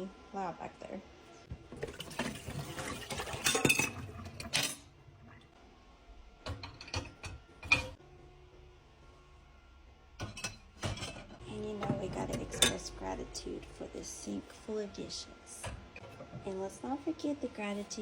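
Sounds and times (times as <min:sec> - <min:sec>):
low machine hum: 0:00.0 - 0:18.0
dishes and cutlery clattering: 0:01.8 - 0:04.9, 0:06.5 - 0:08.0, 0:10.2 - 0:11.4.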